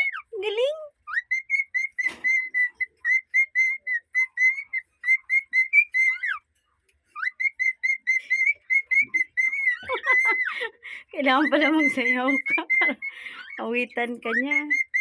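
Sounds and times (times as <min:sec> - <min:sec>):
cockatiel whistling: 0:01.0 - 0:06.4, 0:07.1 - 0:10.6, 0:11.4 - 0:13.6, 0:14.2 - 0:15.0.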